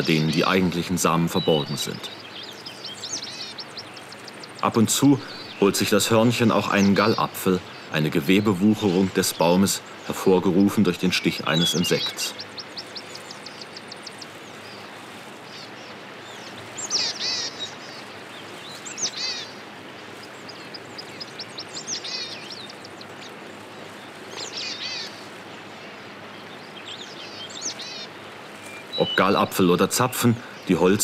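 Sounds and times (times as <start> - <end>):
small birds chirping: 0.0 - 31.0
steady background hiss: 0.0 - 31.0.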